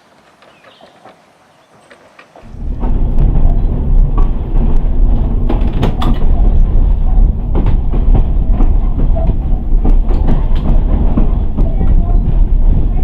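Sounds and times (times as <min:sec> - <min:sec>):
wheels knocking over rails: 0:00.0 - 0:13.0
streetcar rumbling on track: 0:02.1 - 0:13.0.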